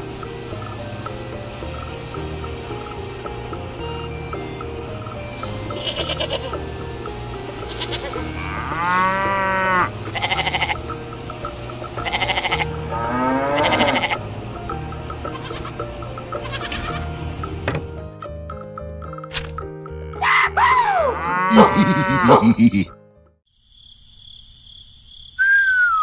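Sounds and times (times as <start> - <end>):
background music: 0.0 - 23.4
sheep bleating: 5.8 - 6.6, 7.7 - 10.8, 12.0 - 12.7, 13.5 - 14.2, 15.2 - 15.8, 16.4 - 17.0.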